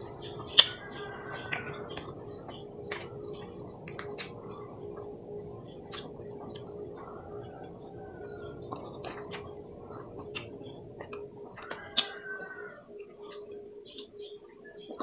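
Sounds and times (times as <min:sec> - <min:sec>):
faint steady hum: 0:00.0 - 0:15.0
chewing and sucking mouth sounds: 0:00.5 - 0:05.1, 0:05.8 - 0:06.8, 0:08.5 - 0:12.6.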